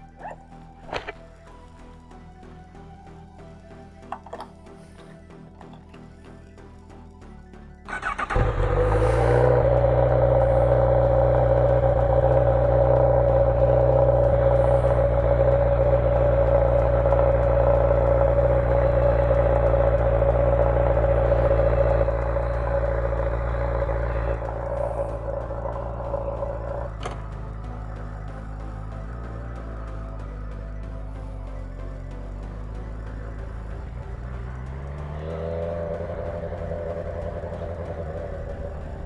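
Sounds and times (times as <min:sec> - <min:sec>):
motorcycle engine idling: 0:00.0 - 0:39.0
motorcycle starter crank: 0:07.9 - 0:11.1.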